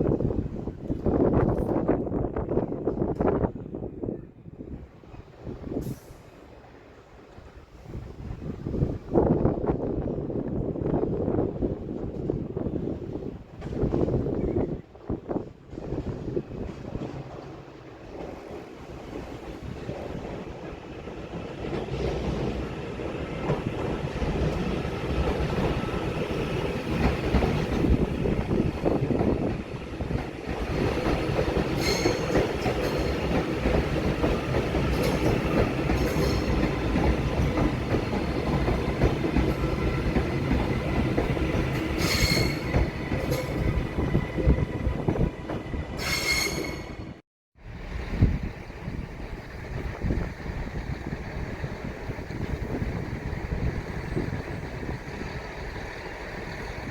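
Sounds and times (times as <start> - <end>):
train wheels clacking over rails: 15.6 - 47.2
high wheel squeals: 42.0 - 42.8, 45.9 - 47.2.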